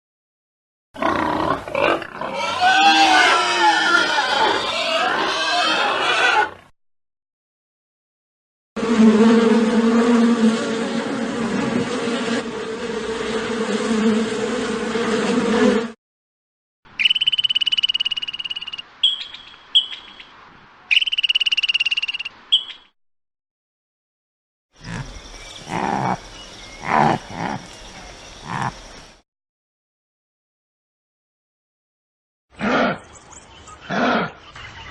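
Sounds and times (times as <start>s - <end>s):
animal buzz: 8.8s - 16.0s, 24.8s - 27.8s, 28.4s - 28.9s
high trilling bursts: 17.0s - 20.0s, 20.9s - 22.3s.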